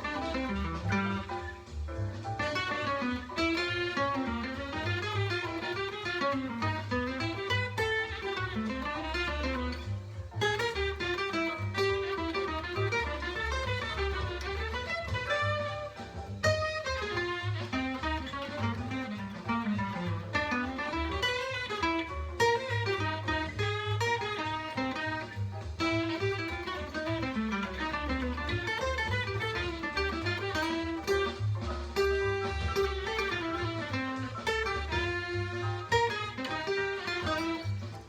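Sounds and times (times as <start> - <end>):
acoustic guitar jazz line: 0.0 - 38.0
low accompaniment: 0.0 - 38.0.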